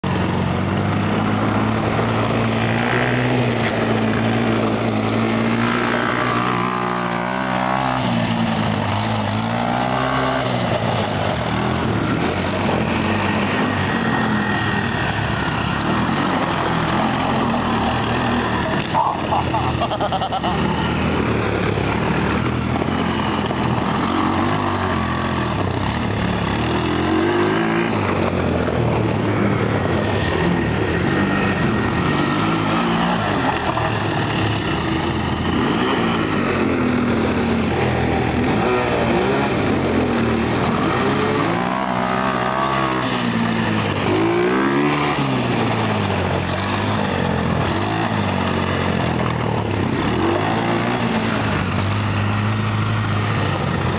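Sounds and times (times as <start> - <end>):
quad bike engine revving: 0.0 - 53.9.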